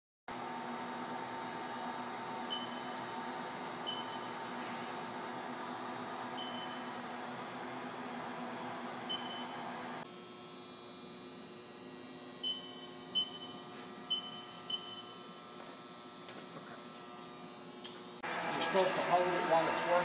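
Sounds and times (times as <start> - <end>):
machine electrical hum: 0.3 - 20.0
machine running noise: 0.3 - 20.0
short electronic beeps: 2.5 - 2.9, 3.8 - 4.3, 6.4 - 6.9, 9.1 - 9.6, 12.4 - 15.2.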